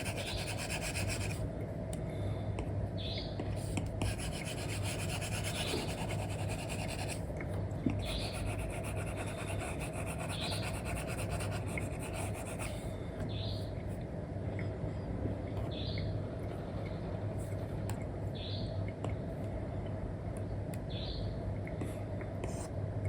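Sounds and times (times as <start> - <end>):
stylus scratching on screen: 0.0 - 1.4, 4.0 - 7.2, 8.0 - 12.8
low background hum: 0.0 - 23.0.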